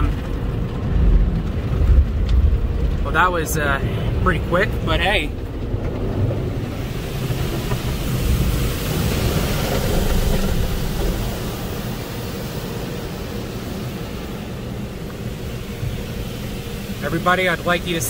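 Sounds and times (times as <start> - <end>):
air dryers blowing: 0.0 - 18.0.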